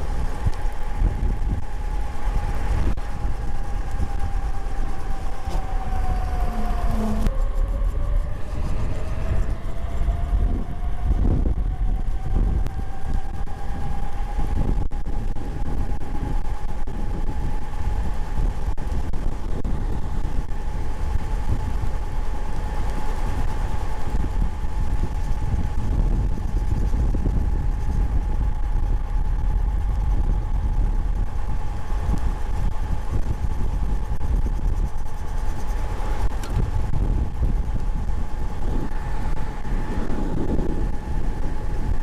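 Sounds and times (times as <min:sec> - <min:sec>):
electric motor whine: 0:00.0 - 0:42.0
wind buffeting microphone: 0:00.0 - 0:42.0.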